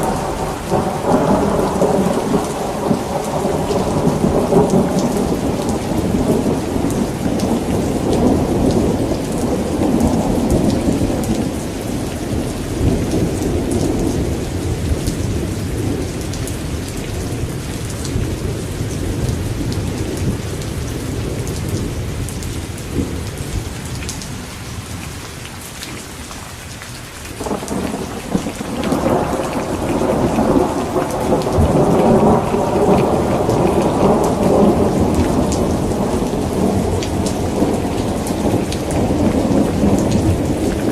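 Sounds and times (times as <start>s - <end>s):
rolling thunder: 0.0s - 23.8s, 27.4s - 40.9s
steady rain falling: 0.0s - 40.9s.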